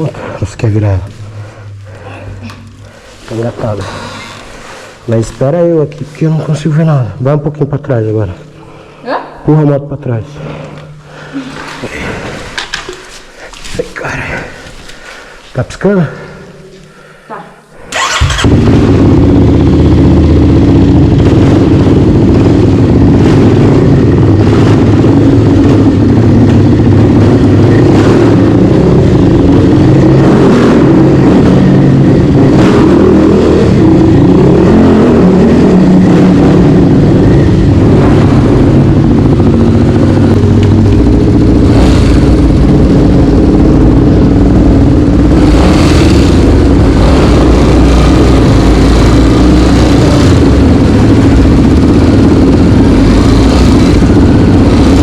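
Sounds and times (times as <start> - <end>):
motorcycle engine revving: 17.9 - 55.0.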